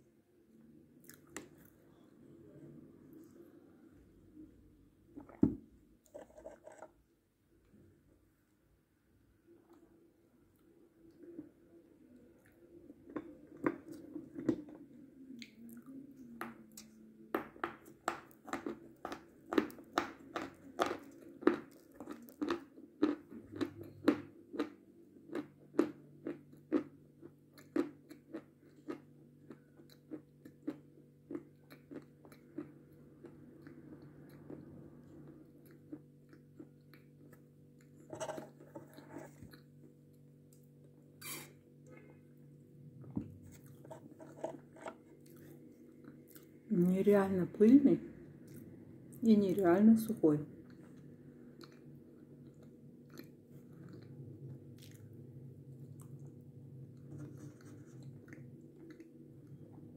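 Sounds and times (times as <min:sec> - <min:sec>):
crisp crunching chews: 0:18.3 - 0:34.7.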